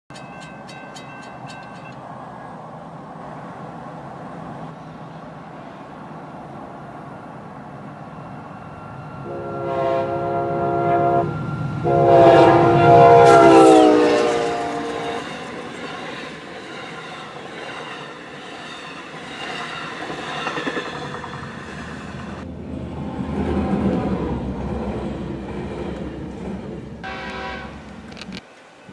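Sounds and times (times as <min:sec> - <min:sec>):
passing train rumble: 0:00.1 - 0:28.9
locomotive air horn blasts: 0:09.2 - 0:15.4, 0:27.0 - 0:28.2.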